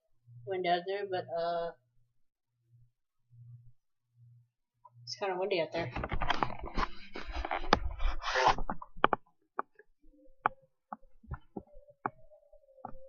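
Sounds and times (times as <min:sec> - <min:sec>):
sharp clicks and knocks: 0:08.5 - 0:12.2.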